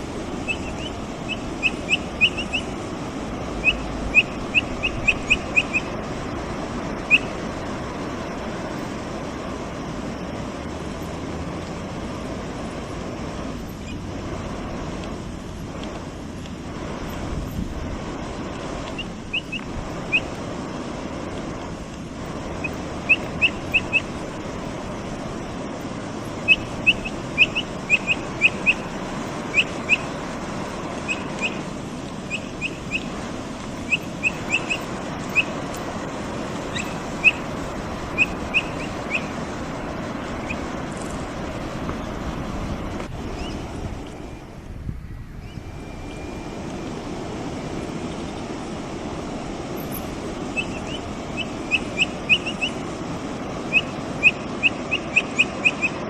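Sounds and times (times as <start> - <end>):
steady rushing background: 0.0 - 44.8.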